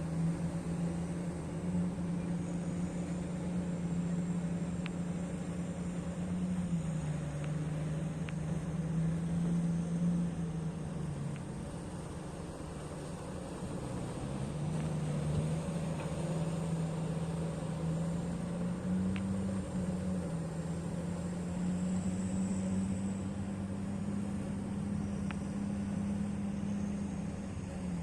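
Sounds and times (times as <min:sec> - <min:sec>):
diesel engine drone: 0:00.0 - 0:28.0
faint clicks: 0:04.8 - 0:05.0, 0:07.4 - 0:07.6, 0:11.3 - 0:11.5, 0:19.1 - 0:19.3, 0:25.2 - 0:25.5.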